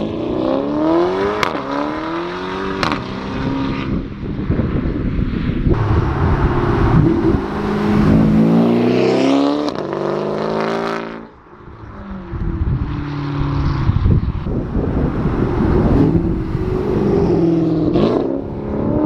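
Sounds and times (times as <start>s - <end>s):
car engine accelerating hard: 5.7s - 11.3s, 12.3s - 19.0s.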